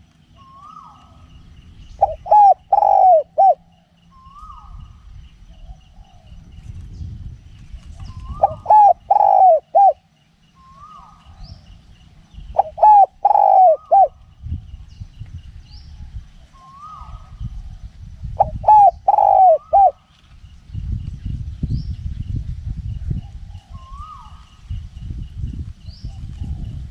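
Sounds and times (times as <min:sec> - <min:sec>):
wind rumble on microphone: 0:00.0 - 0:26.9
dove cooing: 0:00.4 - 0:01.3, 0:02.0 - 0:06.4, 0:08.0 - 0:11.4, 0:12.5 - 0:14.3, 0:16.5 - 0:17.4, 0:18.4 - 0:20.0.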